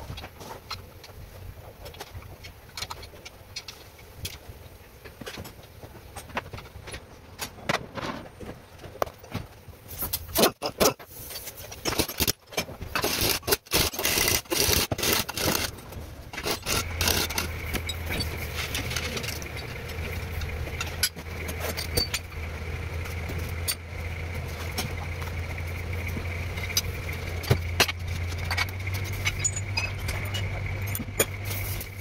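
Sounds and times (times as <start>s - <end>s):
clicks and scraping: 0.0s - 32.0s
car engine starting and idling: 14.0s - 32.0s.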